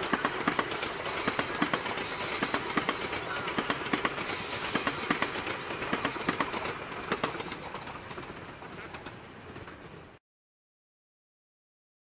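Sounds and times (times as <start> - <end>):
wheels clicking over rail joints: 0.0 - 10.2.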